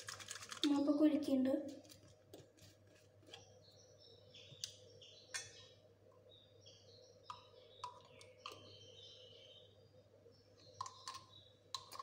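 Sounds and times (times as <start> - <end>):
small birds chirping: 3.0 - 12.0.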